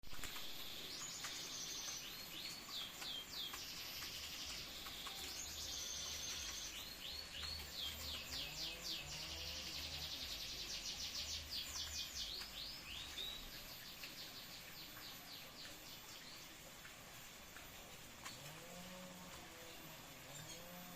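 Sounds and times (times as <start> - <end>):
canary singing: 0.2 - 16.6.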